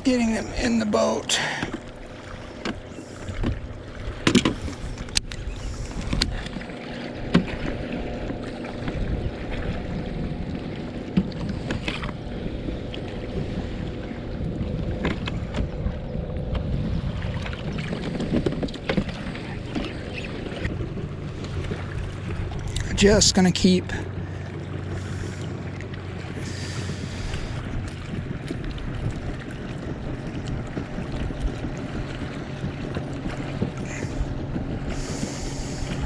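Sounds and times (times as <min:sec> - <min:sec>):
steady low hum: 0:00.0 - 0:36.0
knocks against kayak hull: 0:04.2 - 0:04.7.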